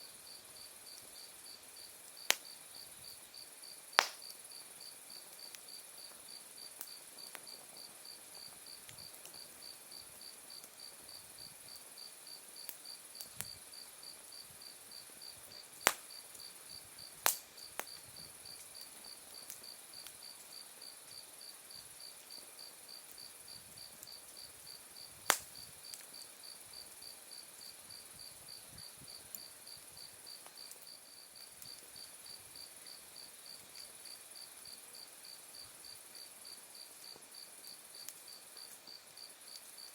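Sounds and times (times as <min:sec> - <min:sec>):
wood fire crackling and popping: 0:00.9 - 0:13.7, 0:14.4 - 0:21.3, 0:22.1 - 0:27.8, 0:28.8 - 0:34.2.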